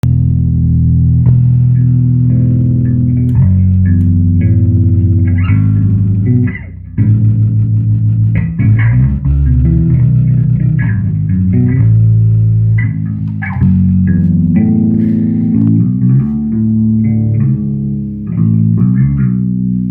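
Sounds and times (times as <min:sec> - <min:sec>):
electric bass guitar notes: 0:00.0 - 0:19.9.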